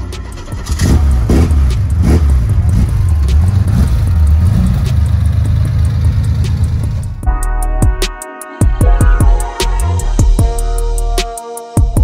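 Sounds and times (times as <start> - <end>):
car engine revving and idling: 0.0 - 7.3.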